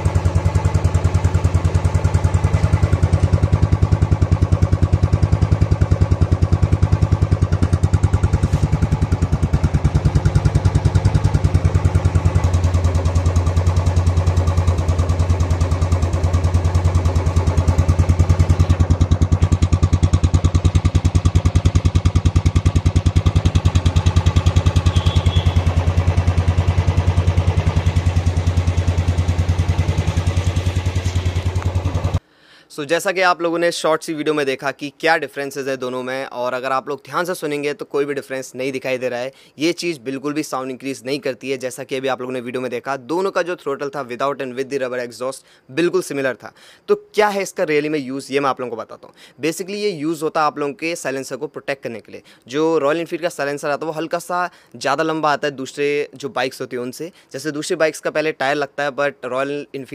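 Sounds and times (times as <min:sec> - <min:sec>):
motorcycle engine idling: 0:00.0 - 0:32.2.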